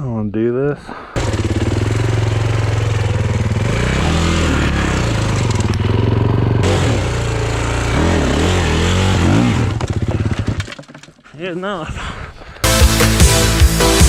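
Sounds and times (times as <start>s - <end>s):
dirt bike engine running: 1.2s - 11.0s.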